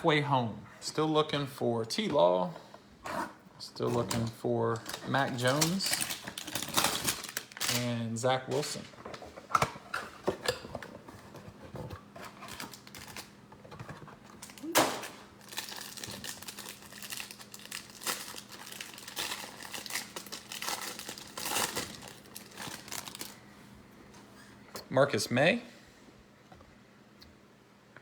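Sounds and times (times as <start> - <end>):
packaging crinkling and tearing: 3.9 - 8.8, 12.1 - 13.4, 14.3 - 23.4.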